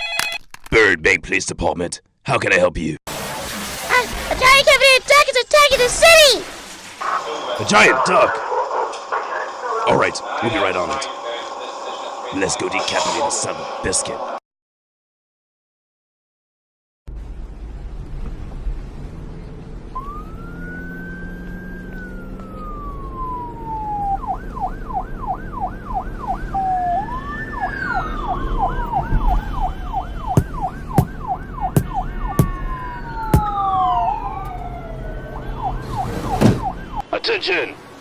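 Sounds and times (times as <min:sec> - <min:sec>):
police sirens wailing and yelping: 0:07.0 - 0:14.4, 0:19.9 - 0:37.1
low vehicle rumble: 0:17.1 - 0:37.0.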